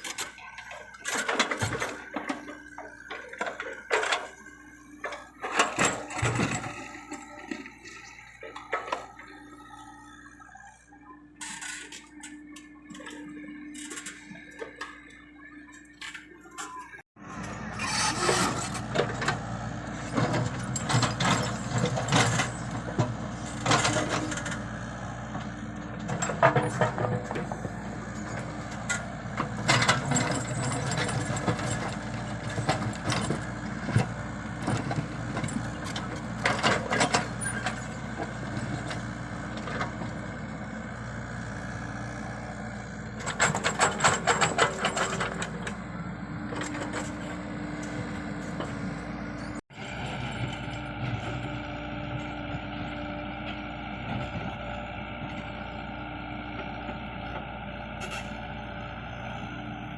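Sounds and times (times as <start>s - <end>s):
metallic rattling and clanking: 0.0s - 7.4s, 25.9s - 40.0s, 43.2s - 45.8s
excavator diesel engine running: 0.0s - 59.9s.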